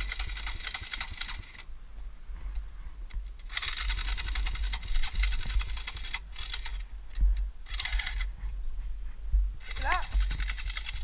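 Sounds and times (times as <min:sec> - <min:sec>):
off-road motorcycle engine running: 0:00.0 - 0:01.6, 0:09.6 - 0:11.0
wind rumble on microphone: 0:01.2 - 0:11.0.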